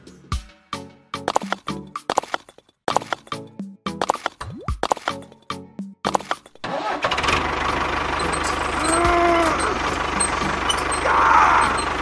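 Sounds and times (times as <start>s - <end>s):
tractor engine chugging: 6.1s - 12.0s.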